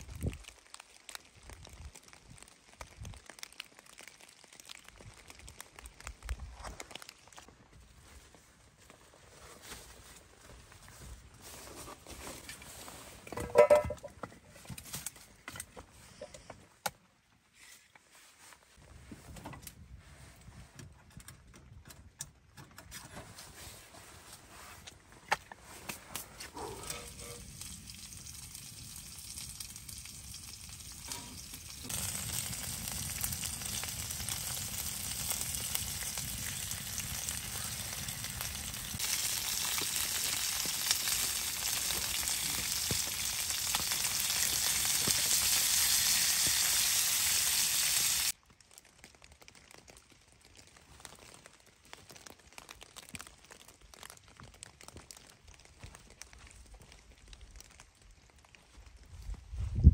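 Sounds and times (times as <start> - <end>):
meat sizzling in a skillet: 26.7 - 48.4.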